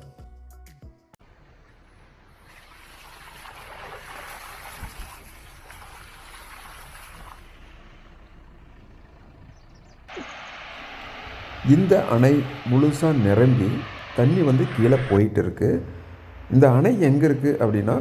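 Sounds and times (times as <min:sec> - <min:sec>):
water rushing over spillway: 0:02.4 - 0:07.8, 0:10.1 - 0:18.0.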